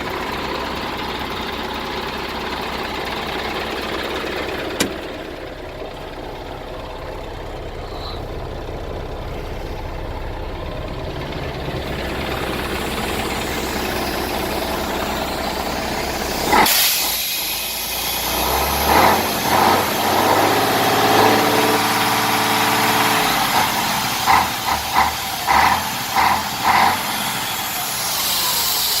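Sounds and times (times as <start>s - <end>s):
diesel truck engine idling: 0.0s - 29.0s
short air bursts: 12.4s - 19.6s, 25.9s - 29.0s
sharp hiss of air: 12.9s - 18.7s.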